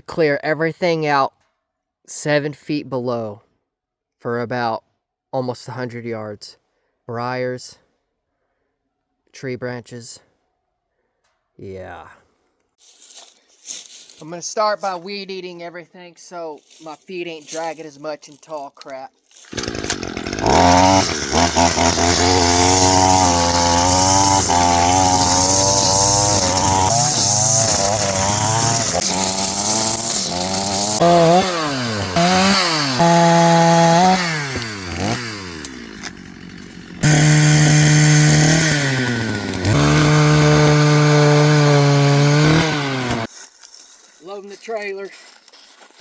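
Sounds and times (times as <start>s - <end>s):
brush cutter engine revving: 19.5s - 43.3s.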